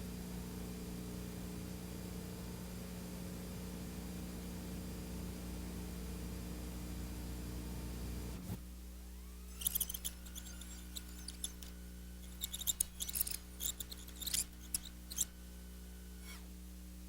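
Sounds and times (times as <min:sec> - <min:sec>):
steady low hum: 0:08.3 - 0:17.0
small clicks and crackles: 0:09.5 - 0:15.3.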